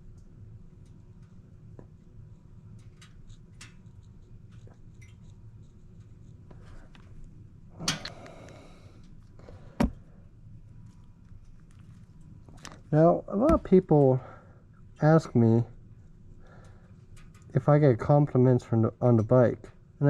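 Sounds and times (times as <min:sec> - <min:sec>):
low steady hum: 0:00.0 - 0:20.0
handling noises: 0:10.8 - 0:14.2.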